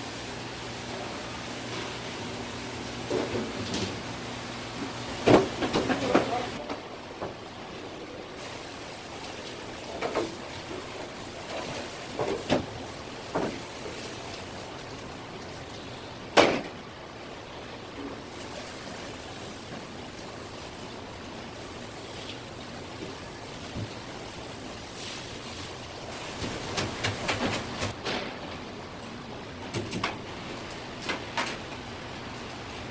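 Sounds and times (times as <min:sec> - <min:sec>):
steady hiss: 0:08.4 - 0:15.2, 0:18.3 - 0:27.8.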